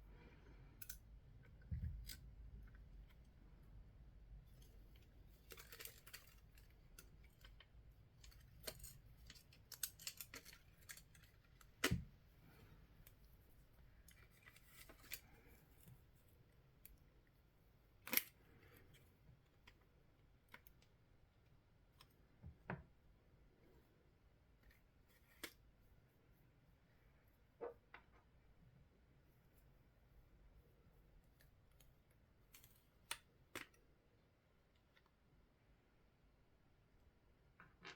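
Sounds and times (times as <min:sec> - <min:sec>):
clicks and scrapes of tools: 0:05.0 - 0:12.0.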